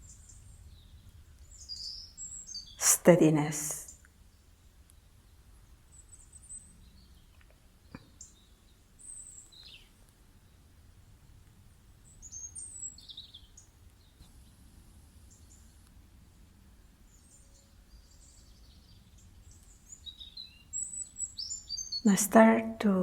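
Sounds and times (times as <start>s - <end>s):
birds chirping: 0.0s - 4.0s, 17.5s - 23.0s
faint low background noise: 0.0s - 23.0s.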